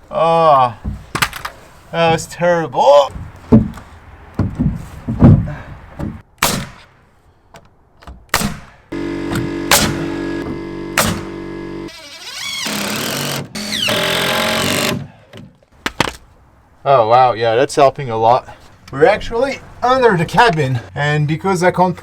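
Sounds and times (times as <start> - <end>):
power tool rapid hammering: 8.9 - 11.9.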